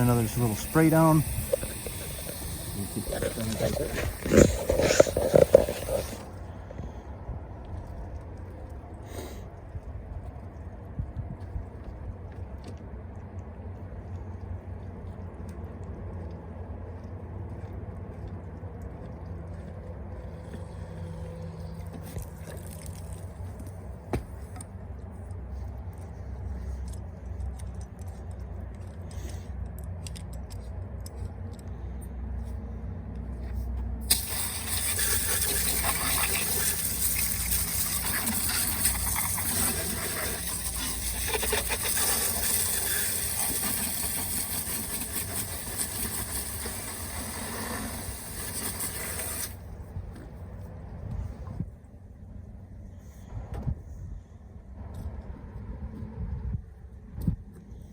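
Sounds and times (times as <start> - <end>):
garden hose spraying water: 0.0 - 6.4, 34.0 - 49.7
steady low hum: 0.0 - 57.9.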